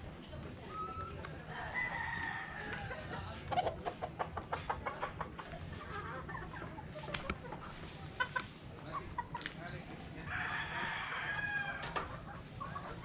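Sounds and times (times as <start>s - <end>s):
chicken clucking: 0.0s - 13.0s
rooster crowing: 1.6s - 3.1s, 10.3s - 11.9s.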